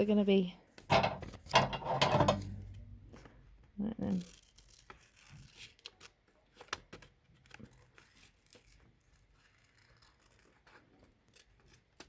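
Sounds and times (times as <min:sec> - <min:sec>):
scissors snipping paper: 0:04.0 - 0:12.0.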